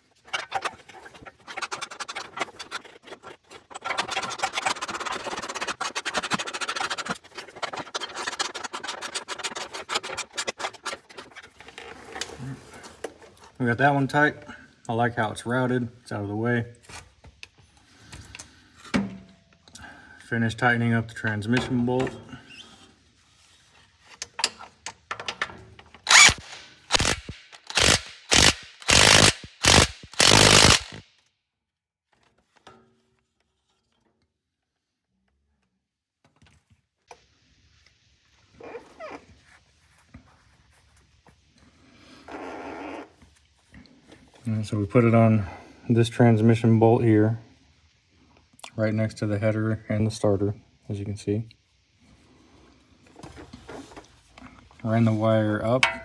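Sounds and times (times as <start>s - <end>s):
ratchet wrench clicking: 26.1s - 31.0s.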